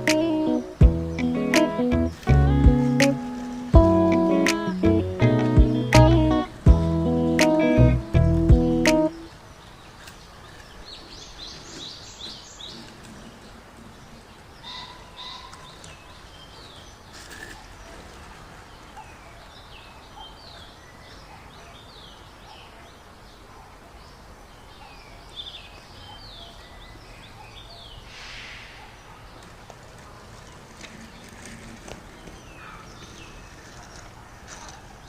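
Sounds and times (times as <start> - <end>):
faint background hiss: 0.0 - 34.8
small birds chirping: 0.0 - 35.0.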